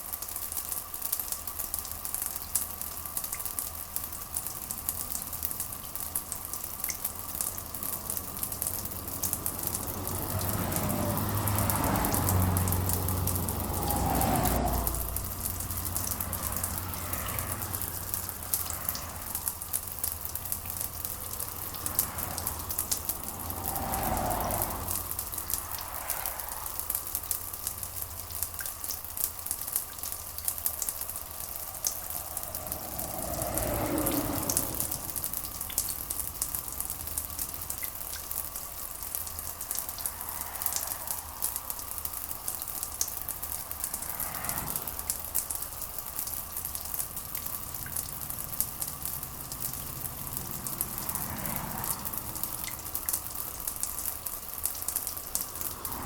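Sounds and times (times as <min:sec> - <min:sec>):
rain drops ticking: 0:00.0 - 0:56.0
deep rushing sound: 0:07.8 - 0:27.9, 0:30.9 - 0:37.1.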